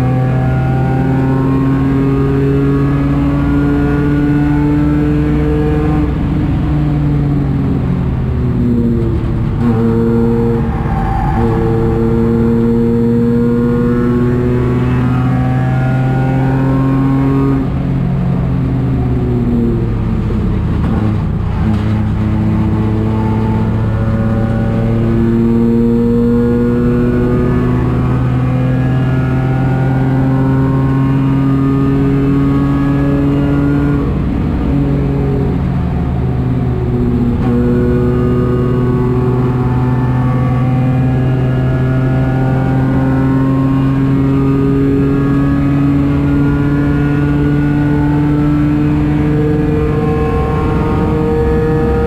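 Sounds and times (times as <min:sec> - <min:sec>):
race car engine running hard: 0:00.0 - 0:52.0.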